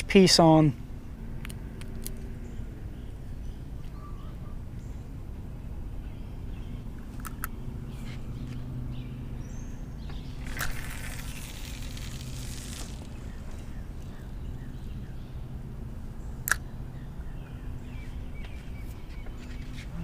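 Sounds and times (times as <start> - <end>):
faint bird chirps: 2.5 - 5.0.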